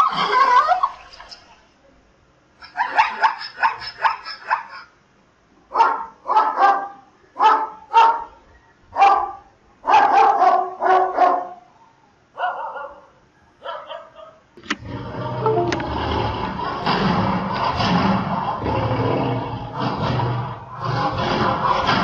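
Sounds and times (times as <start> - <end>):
zebra yelping barks: 2.6 - 5.0, 5.7 - 8.4, 9.0 - 11.6, 12.4 - 14.5
dog barking: 2.7 - 4.9, 5.7 - 8.4, 9.0 - 14.4.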